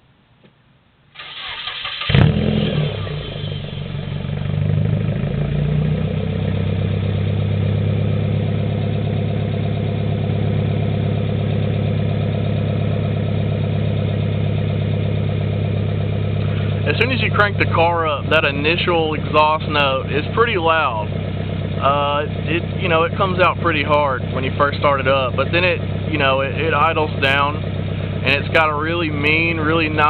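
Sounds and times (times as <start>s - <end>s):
car engine starting and idling: 1.1s - 30.0s
starter motor cranking: 1.2s - 3.9s.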